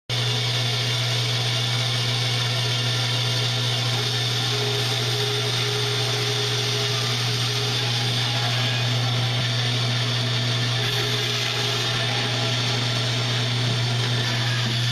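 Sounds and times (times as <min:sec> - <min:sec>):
small electric motor humming: 0:00.1 - 0:14.9.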